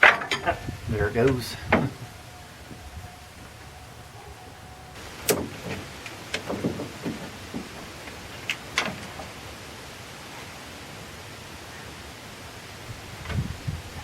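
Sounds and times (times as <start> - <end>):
tools and bolts clinking on metal: 0.0 - 0.6.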